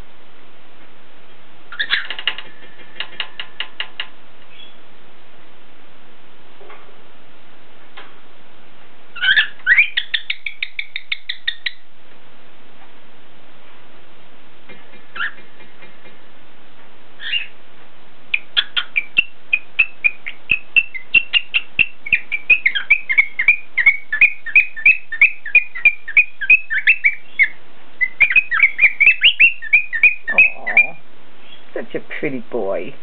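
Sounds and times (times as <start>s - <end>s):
cockatiel chirping: 1.7s - 2.4s, 4.5s - 4.8s, 9.1s - 11.8s, 15.0s - 15.7s, 17.2s - 17.6s, 18.3s - 31.7s.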